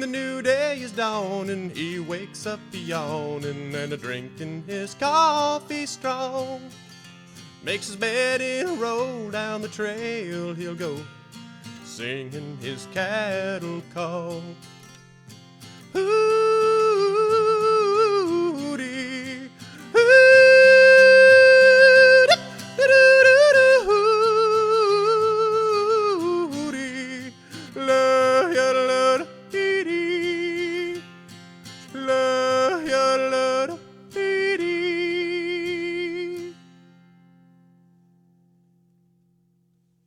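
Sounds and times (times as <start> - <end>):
strummed acoustic guitar: 0.0 - 39.8
person yodeling: 16.0 - 19.2, 19.8 - 31.0, 32.0 - 36.5.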